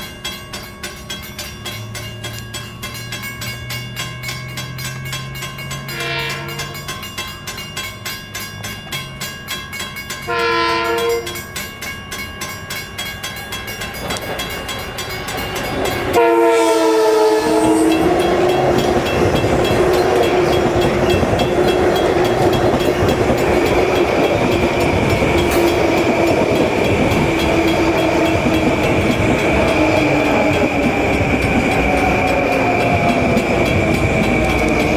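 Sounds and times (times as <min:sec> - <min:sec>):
train passing with rumble: 0:00.0 - 0:34.9
train horn blasts: 0:05.9 - 0:06.8, 0:10.3 - 0:11.5, 0:16.1 - 0:18.5.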